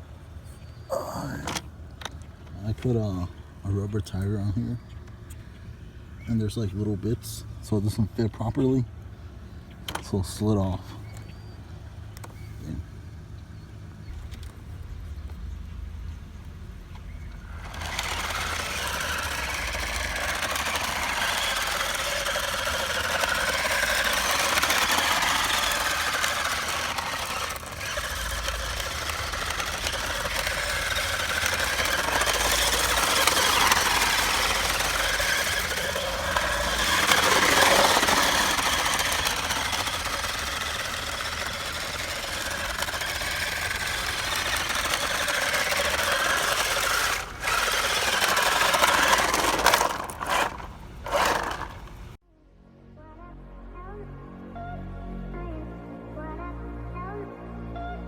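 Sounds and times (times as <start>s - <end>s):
small electric motor whining: 0.0s - 3.2s, 16.9s - 52.2s
person talking: 0.9s - 1.6s.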